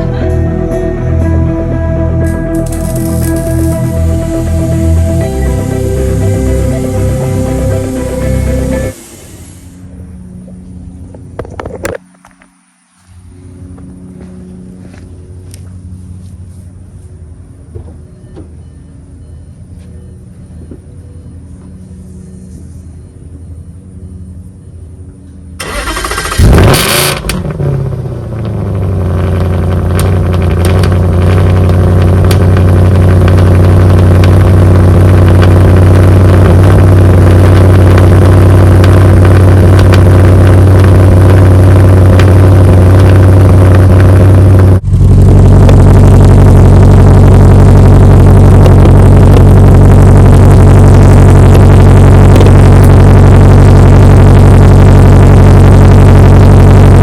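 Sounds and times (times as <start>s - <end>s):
car engine starting and idling: 0.0s - 10.2s, 25.6s - 57.0s.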